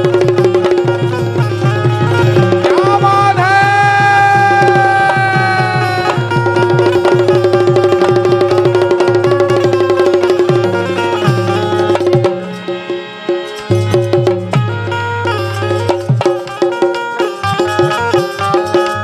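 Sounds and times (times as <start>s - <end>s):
fast hand-drum rhythm: 0.0s - 19.0s
long sliding melodic note: 1.3s - 16.1s.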